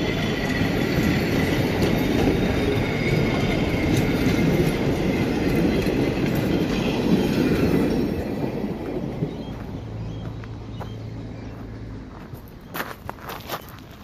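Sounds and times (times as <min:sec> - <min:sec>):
carriage wheels rolling on rails: 0:00.0 - 0:08.6.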